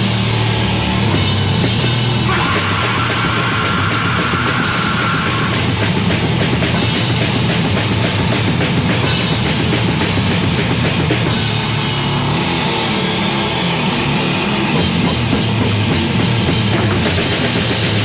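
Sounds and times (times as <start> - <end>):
heavy metal band playing: 0.0 - 18.0.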